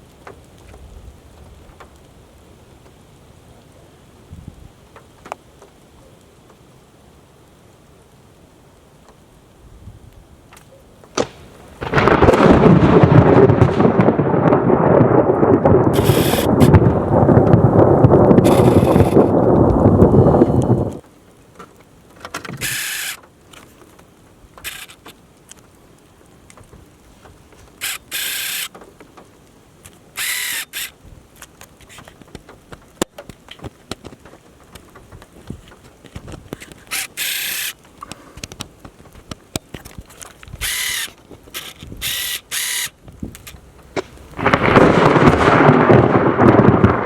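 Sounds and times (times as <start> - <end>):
close thunder: 11.2 - 21.0, 44.0 - 47.0
short hissing bursts: 16.0 - 16.7, 22.6 - 23.2, 27.8 - 28.7, 36.9 - 38.4, 40.6 - 42.9.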